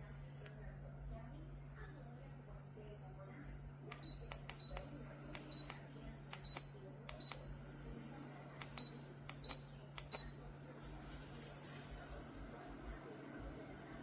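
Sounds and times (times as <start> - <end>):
steady low hum: 0.0 - 14.0
button clicks: 3.9 - 7.5, 8.6 - 10.4.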